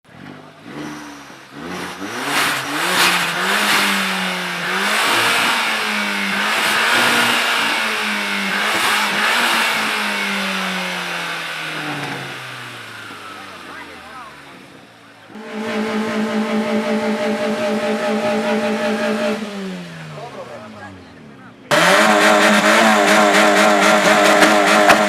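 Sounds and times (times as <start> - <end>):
car engine revving: 0.1 - 25.0.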